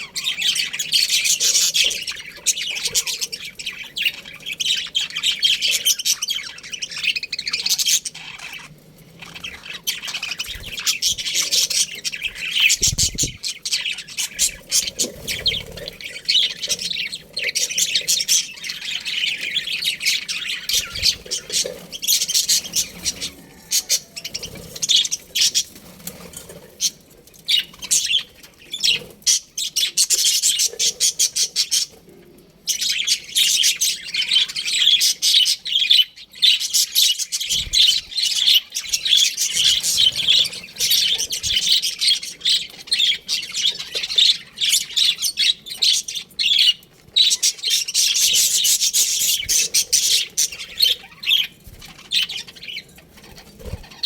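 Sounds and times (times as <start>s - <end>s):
budgerigars chirping: 0.0s - 26.0s, 32.7s - 54.0s.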